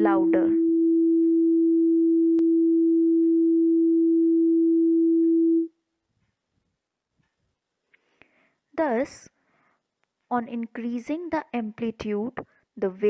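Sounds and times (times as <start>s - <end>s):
loud pure sine tone: 0.0s - 5.7s.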